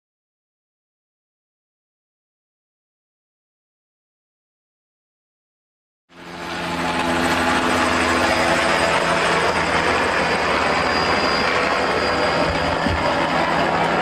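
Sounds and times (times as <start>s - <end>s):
loud engine drone: 6.1s - 14.0s.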